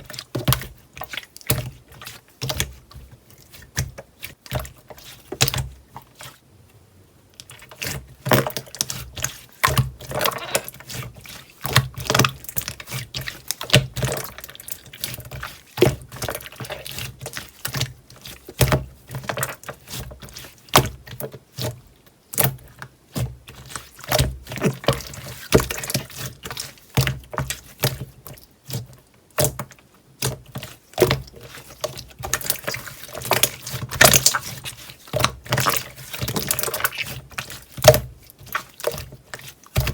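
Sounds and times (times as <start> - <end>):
slime squished by hand: 30.2 - 39.9.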